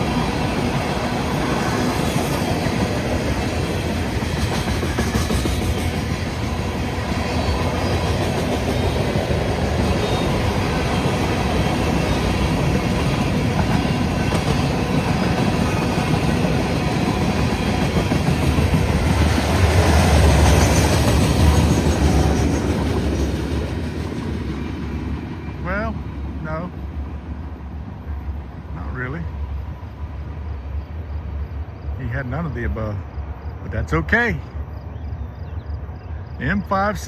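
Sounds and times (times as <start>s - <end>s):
freight train wheels clicking on rails: 0.0s - 26.3s.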